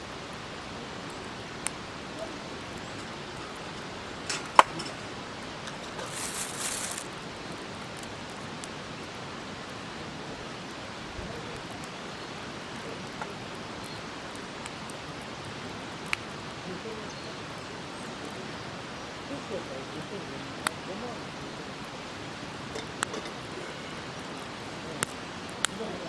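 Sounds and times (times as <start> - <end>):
campfire crackle: 0.0 - 26.0
campfire hiss: 0.0 - 26.0
short high hiss: 5.9 - 7.2
faint ticks: 11.5 - 16.4, 25.0 - 25.9.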